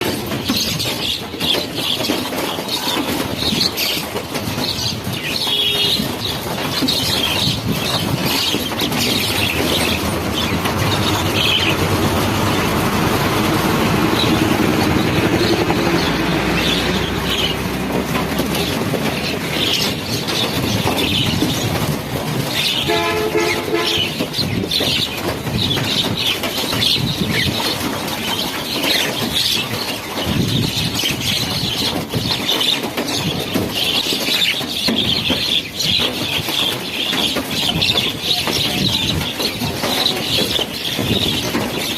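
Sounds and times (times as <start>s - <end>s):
flock of birds chirping: 0.0s - 41.9s
loud rushing noise: 7.6s - 25.7s.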